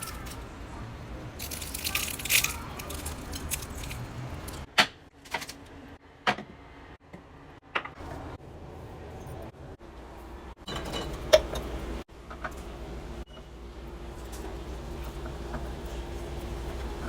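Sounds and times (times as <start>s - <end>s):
utensils clinking against dishes: 0.0s - 0.5s, 1.4s - 4.7s, 10.6s - 11.8s.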